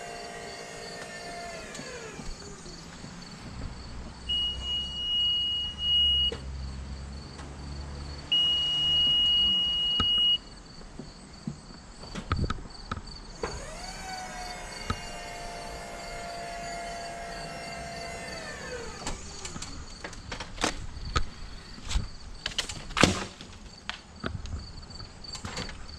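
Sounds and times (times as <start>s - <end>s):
high-pitched electronic alarm beeps: 4.3s - 6.4s, 8.3s - 10.5s.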